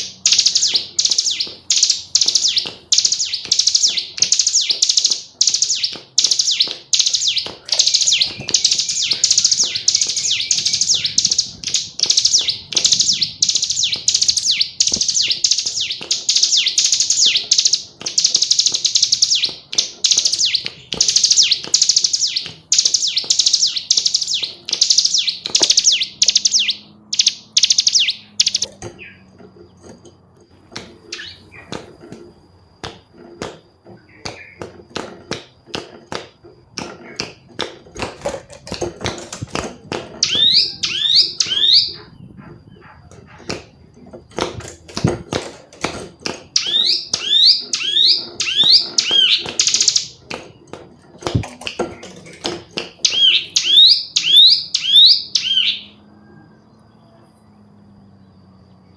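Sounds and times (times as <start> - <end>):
bird high chattering calls: 0.0 - 29.8, 31.0 - 31.9, 40.2 - 44.4, 46.5 - 56.1
scattered clicks: 0.0 - 42.1, 43.1 - 55.5.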